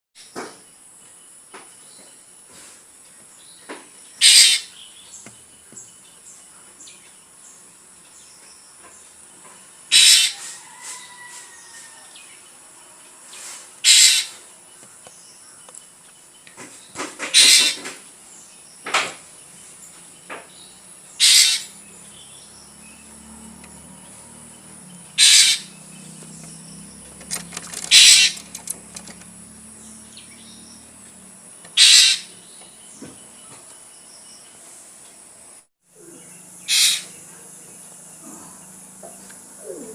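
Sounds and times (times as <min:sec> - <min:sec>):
bird giving harsh calls: 0:04.2 - 0:04.8, 0:09.9 - 0:10.8, 0:13.8 - 0:14.5, 0:17.2 - 0:18.0, 0:21.1 - 0:21.8, 0:25.1 - 0:25.8, 0:27.0 - 0:29.1, 0:31.7 - 0:32.4, 0:36.6 - 0:37.2.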